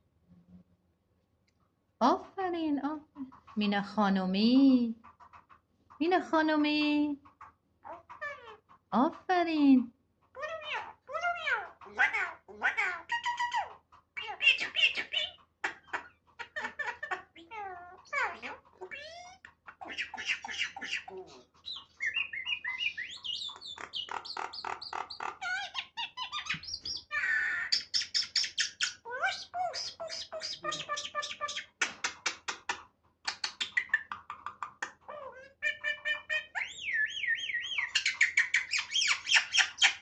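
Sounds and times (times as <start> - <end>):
myna bird chattering and whistling: 13.1 - 40.0.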